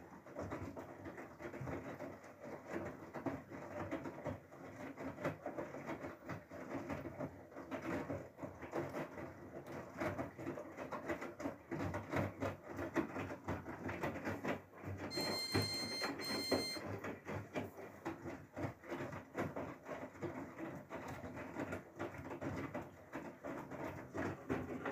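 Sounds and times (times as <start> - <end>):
washing machine electronic beeps: 15.0 - 17.0.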